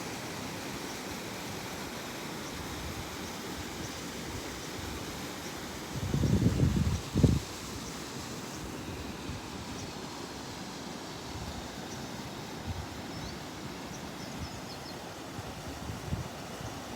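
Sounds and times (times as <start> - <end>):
wind rumble on microphone: 5.9 - 7.5.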